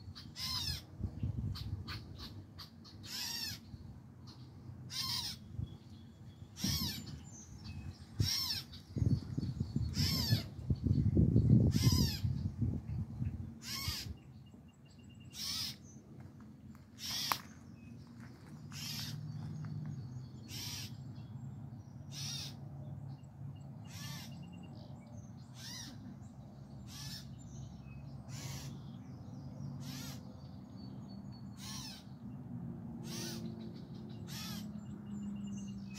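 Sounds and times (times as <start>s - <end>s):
bird calling: 0.0s - 0.9s, 1.5s - 3.7s, 4.3s - 5.6s, 6.3s - 8.9s, 9.8s - 10.6s, 11.6s - 12.4s, 13.6s - 14.4s, 15.2s - 16.0s, 16.9s - 19.6s, 20.4s - 21.0s, 22.1s - 22.6s, 23.8s - 24.5s, 25.5s - 26.1s, 26.8s - 27.4s, 28.3s - 29.0s, 29.8s - 30.3s, 31.4s - 32.2s, 33.0s - 35.9s.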